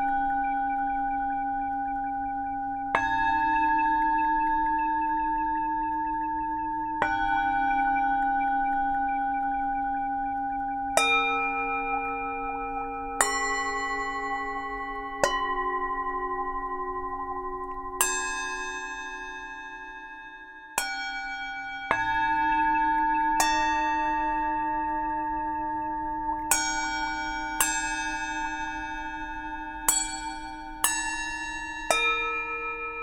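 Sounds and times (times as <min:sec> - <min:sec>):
singing bowls ringing: 0:00.0 - 0:33.0.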